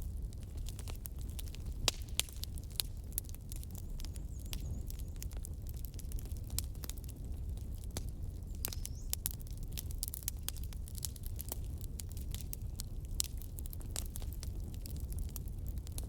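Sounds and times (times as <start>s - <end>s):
low fire rumble: 0.0s - 16.0s
wood fire crackling: 0.0s - 16.0s.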